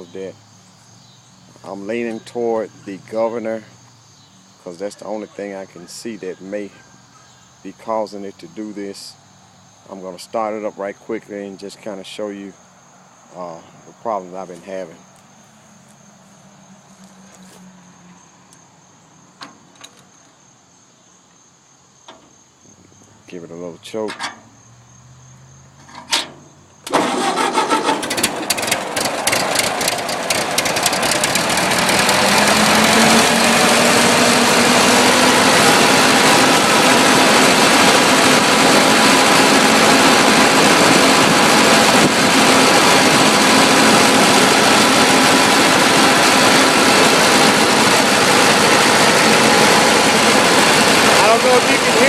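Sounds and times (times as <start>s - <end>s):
tractor engine starting and running: 1.3s - 3.8s, 25.8s - 52.0s.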